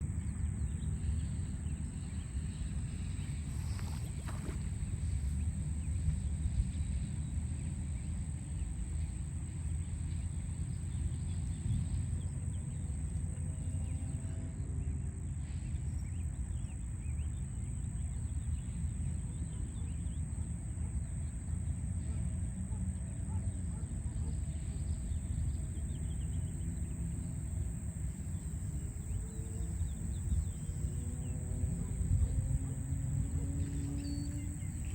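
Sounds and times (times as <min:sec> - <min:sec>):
city traffic rumble: 0:00.0 - 0:34.9.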